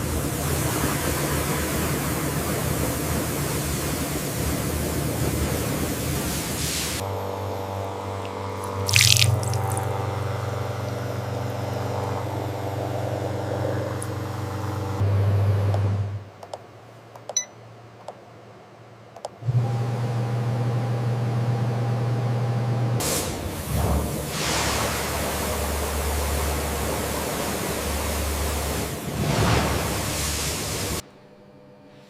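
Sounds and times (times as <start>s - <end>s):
water spraying: 0.4s - 7.0s, 8.1s - 15.0s, 23.0s - 31.0s
machine hum: 7.0s - 16.4s.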